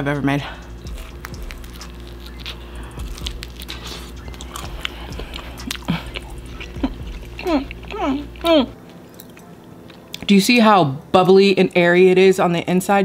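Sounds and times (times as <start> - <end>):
person chewing crispy pizza: 0.6 - 10.2.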